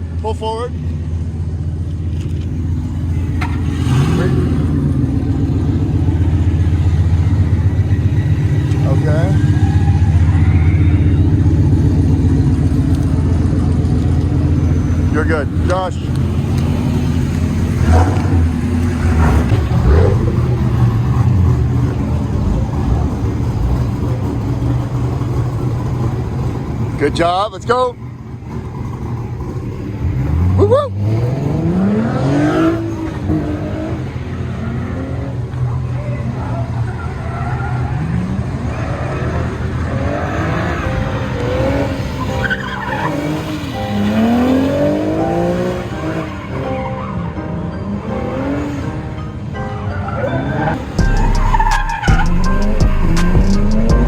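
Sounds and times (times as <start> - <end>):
car engine running loud: 0.0 - 54.0
tyres skidding and squealing: 0.0 - 54.0
engine rev blips: 2.6 - 27.0, 50.1 - 54.0.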